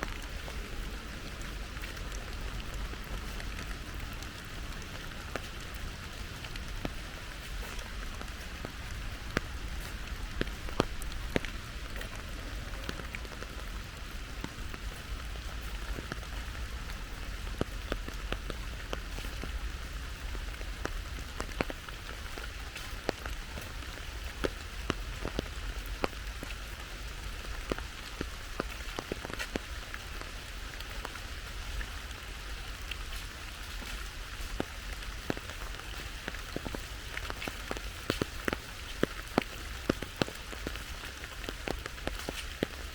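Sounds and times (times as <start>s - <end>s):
rain pattering: 0.0s - 42.9s.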